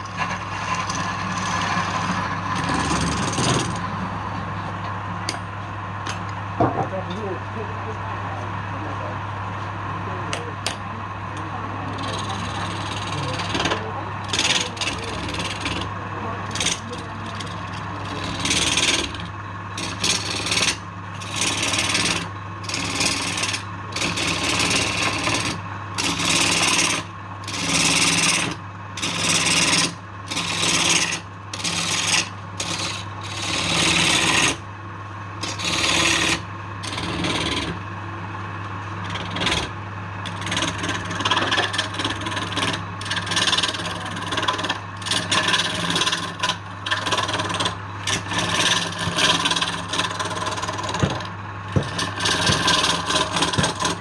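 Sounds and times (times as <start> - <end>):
tool scraping spinning wood: 0.0 - 5.4, 10.3 - 34.7, 35.4 - 54.0
lathe motor hum: 0.0 - 54.0.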